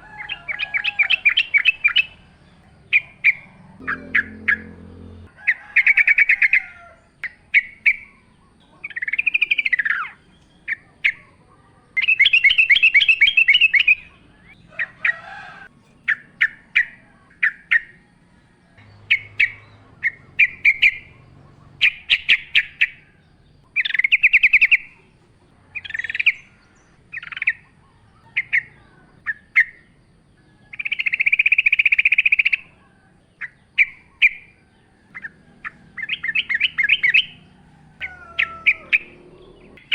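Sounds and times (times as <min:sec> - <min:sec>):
bird trilling: 0:00.0 - 0:11.2, 0:12.0 - 0:23.2, 0:23.8 - 0:25.1, 0:33.4 - 0:39.9
bird chirps: 0:00.0 - 0:15.2, 0:15.8 - 0:39.9.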